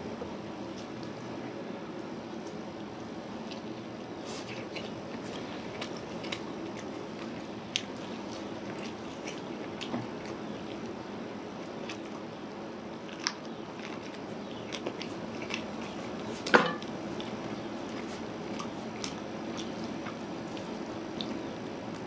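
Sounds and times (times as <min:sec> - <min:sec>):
chewing with wet mouth clicks: 0:02.4 - 0:22.0.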